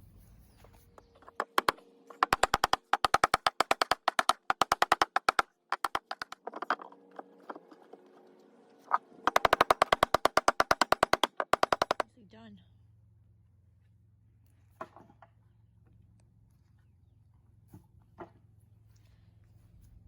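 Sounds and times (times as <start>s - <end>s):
impact driver hammering screws: 1.0s - 8.1s, 8.9s - 12.0s.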